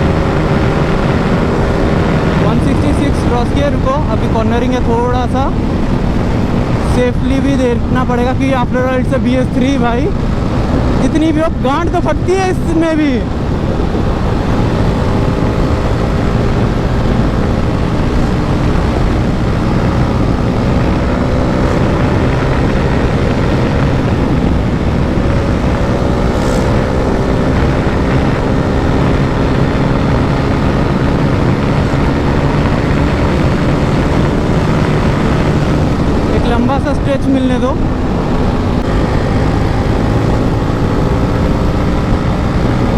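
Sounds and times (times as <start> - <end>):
motorcycle engine running: 0.0 - 42.9
wind and road noise: 0.0 - 42.9.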